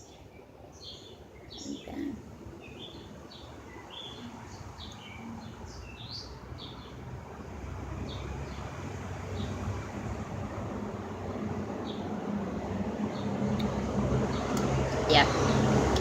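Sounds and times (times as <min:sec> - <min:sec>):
small birds chirping: 0:00.0 - 0:07.1.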